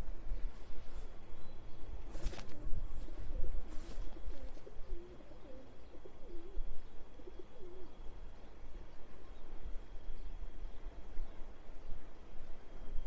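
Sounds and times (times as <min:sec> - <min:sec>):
bird's low wavering calls: 0:02.6 - 0:08.2.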